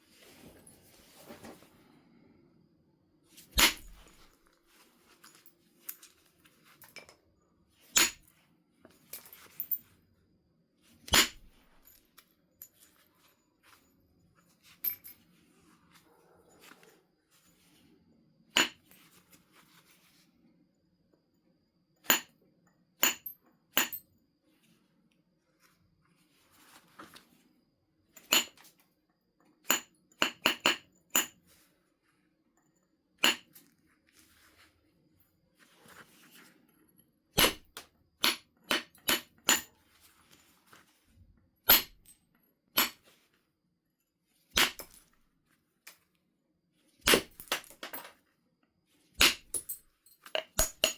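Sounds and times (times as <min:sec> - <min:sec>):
billet striking flint: 0:03.5 - 0:04.3, 0:07.9 - 0:08.3, 0:11.1 - 0:12.0, 0:37.4 - 0:39.7, 0:41.7 - 0:42.1, 0:44.6 - 0:45.0, 0:47.0 - 0:47.7, 0:49.2 - 0:50.9.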